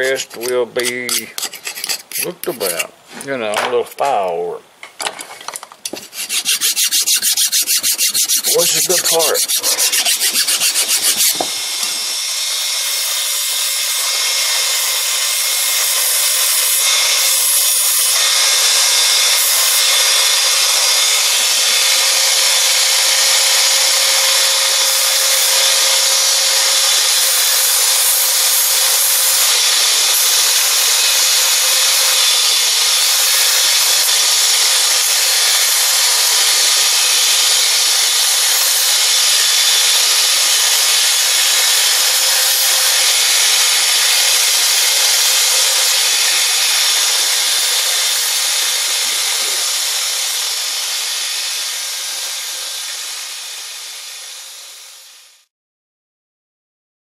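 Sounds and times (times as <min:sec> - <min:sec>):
power tool rasping metal: 0:00.0 - 0:02.9, 0:05.9 - 0:55.0.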